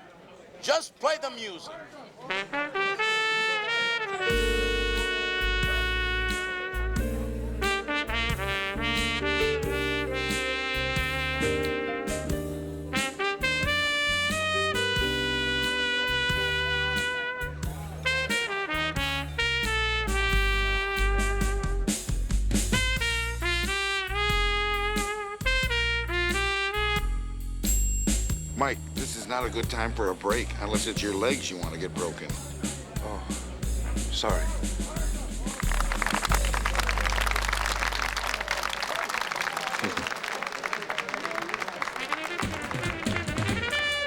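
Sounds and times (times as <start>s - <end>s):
trumpet melody: 2.3s - 32.1s, 41.8s - 44.0s
jazz band playing: 2.4s - 38.8s, 42.2s - 44.0s
walking bass: 4.3s - 27.3s, 28.3s - 38.6s.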